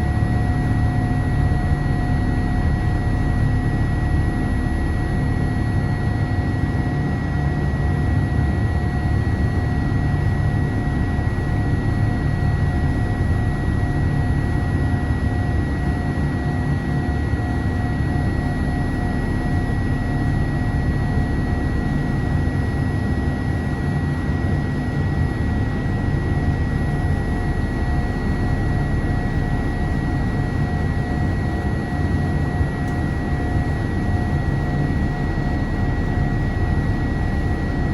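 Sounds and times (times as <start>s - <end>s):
deep engine drone: 0.0s - 6.3s, 25.3s - 37.9s
thin steady whine: 0.0s - 37.9s.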